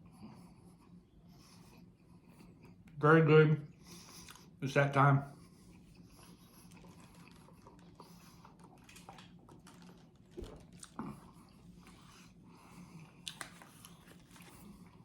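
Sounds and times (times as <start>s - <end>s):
low steady hum: 0.0s - 15.0s
close-up chewing: 3.8s - 4.6s, 5.4s - 15.0s.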